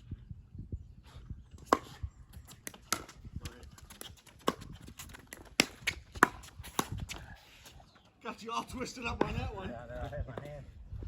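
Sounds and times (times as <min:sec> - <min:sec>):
paddles hitting plastic ball: 0:02.5 - 0:07.1.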